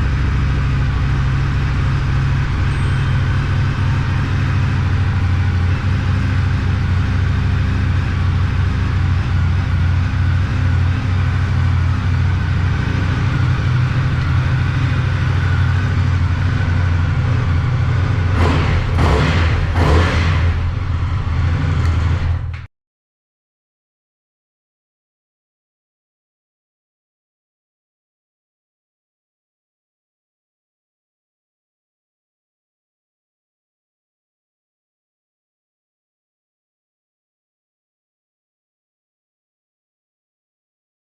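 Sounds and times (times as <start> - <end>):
rush of noise: 0.0 - 22.6
motorcycle engine idling: 0.0 - 22.7.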